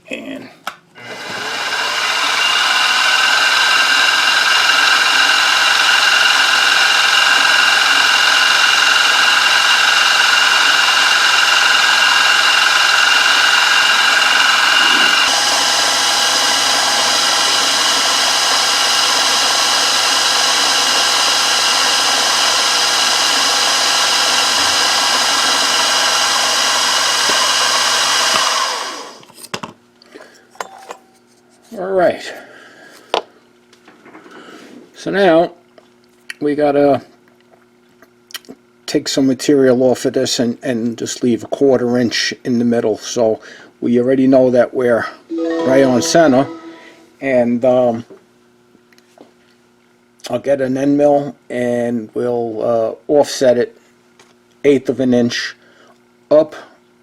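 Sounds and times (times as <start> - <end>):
milling machine spindle whine: 1.1 - 26.0.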